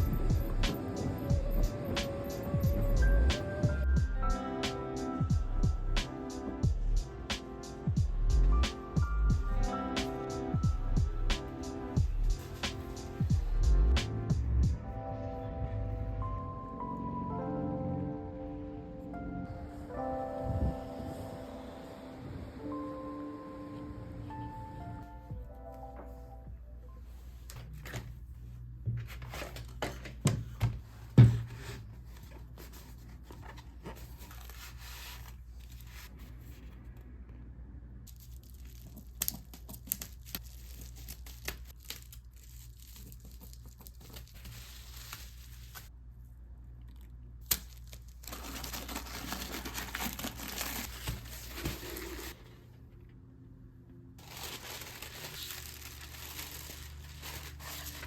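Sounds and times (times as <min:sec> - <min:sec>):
paper tearing and crinkling: 0:38.1 - 0:45.9, 0:47.4 - 0:52.4, 0:54.2 - 0:58.0.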